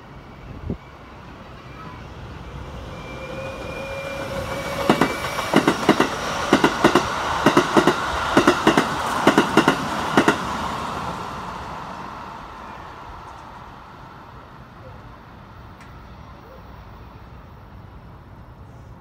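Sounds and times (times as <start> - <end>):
train rolling rumble: 0.0 - 19.0
wheels clacking over rail joints: 4.5 - 10.5.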